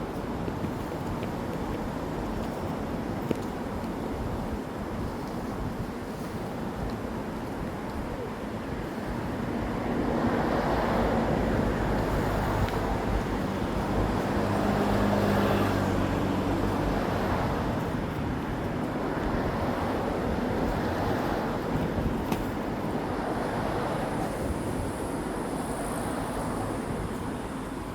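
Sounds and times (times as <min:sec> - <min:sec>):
vehicle passing with engine hum: 0:10.0 - 0:18.1.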